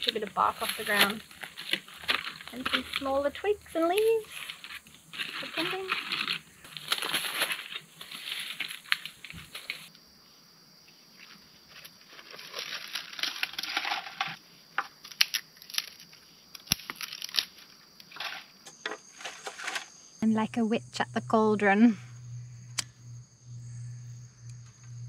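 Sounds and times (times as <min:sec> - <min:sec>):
twigs snapping: 0:00.0 - 0:03.2, 0:11.8 - 0:18.4
bark and twigs crunching: 0:00.0 - 0:09.9, 0:11.2 - 0:19.8.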